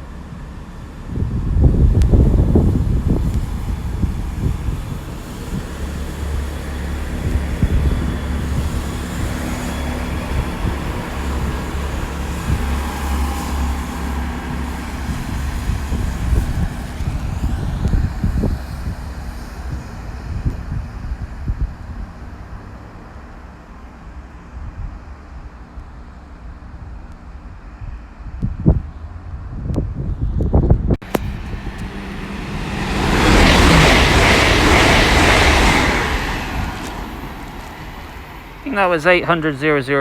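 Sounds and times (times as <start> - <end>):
diesel train idling: 0.0 - 18.0, 31.0 - 40.0
electric train motors whining: 31.1 - 39.7.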